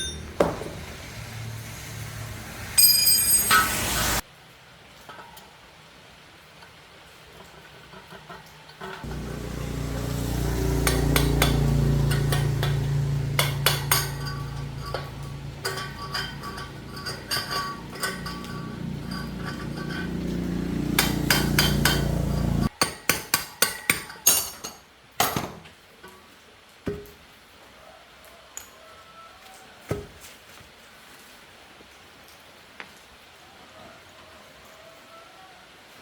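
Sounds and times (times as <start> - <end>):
light metallic clinks: 0.0 - 0.5, 2.8 - 4.2, 10.8 - 22.7
hammer striking metal: 0.0 - 1.1, 2.8 - 4.2, 9.1 - 25.5
motor running: 9.0 - 15.8.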